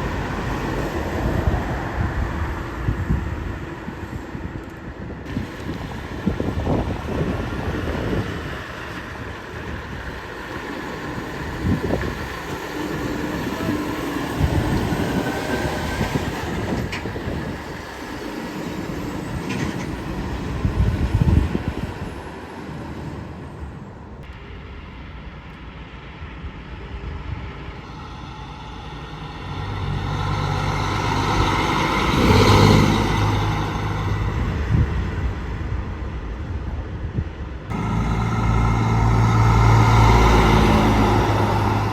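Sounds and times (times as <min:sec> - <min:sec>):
road traffic passing: 0:00.0 - 0:41.9
truck engine driving past: 0:27.6 - 0:34.7, 0:37.7 - 0:41.9.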